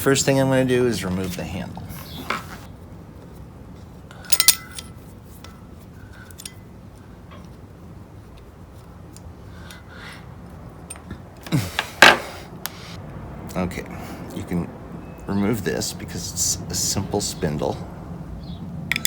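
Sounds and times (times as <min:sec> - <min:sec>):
metal tools clinking: 0:04.1 - 0:05.0.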